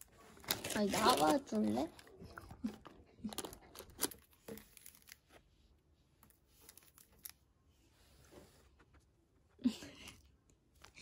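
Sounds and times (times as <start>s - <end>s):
baking paper rustling and crinkling: 0.0s - 2.2s.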